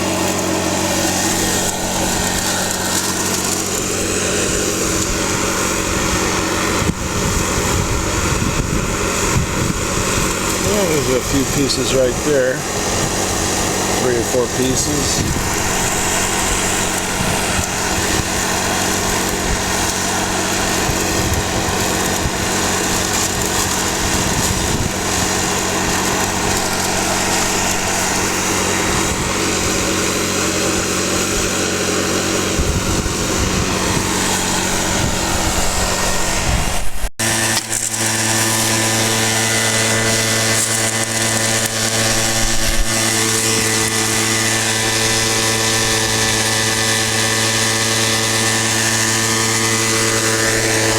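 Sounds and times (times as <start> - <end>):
small gasoline engine running: 0.0 - 50.9.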